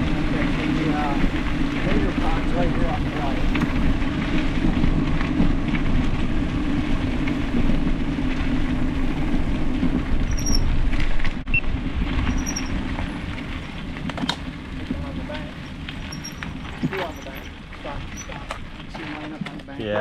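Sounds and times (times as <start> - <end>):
bicycle tyres rolling on trail: 0.0 - 20.0
wind buffeting microphone: 0.0 - 20.0.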